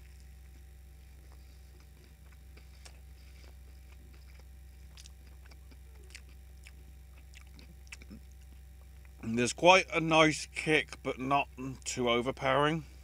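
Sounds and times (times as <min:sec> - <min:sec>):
person chewing: 0:00.0 - 0:09.2
low steady hum: 0:00.0 - 0:13.0.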